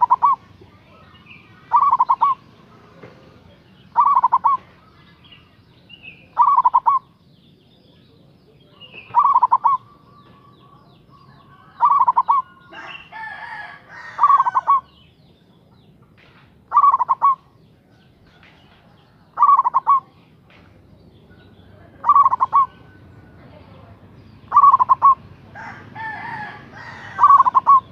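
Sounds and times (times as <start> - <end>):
dove cooing: 0.0 - 0.5, 1.6 - 2.5, 3.9 - 4.8, 6.2 - 7.1, 8.8 - 15.0, 16.7 - 17.9, 19.1 - 20.2, 21.7 - 23.2, 24.5 - 27.9
rough noisy bird call: 0.0 - 27.9.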